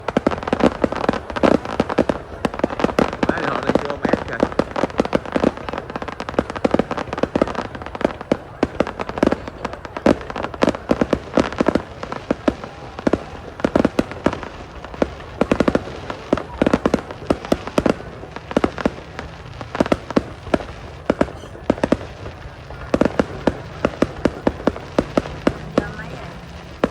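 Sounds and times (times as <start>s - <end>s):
fireworks bangs: 0.0s - 26.9s.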